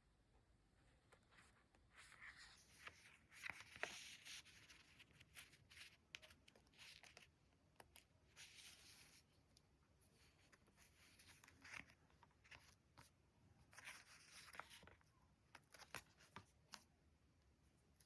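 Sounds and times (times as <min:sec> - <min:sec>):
paper rustling: 0:01.2 - 0:07.3, 0:07.9 - 0:09.3, 0:10.2 - 0:16.9.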